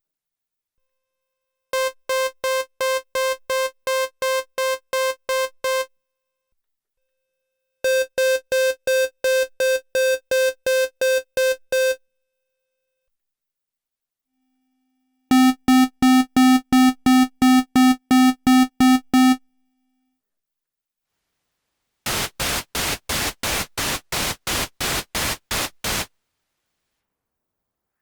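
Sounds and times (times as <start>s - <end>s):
buzzy synthesizer note pulsing: 22.1s - 26.1s
pulsing white noise bursts: 22.1s - 26.1s.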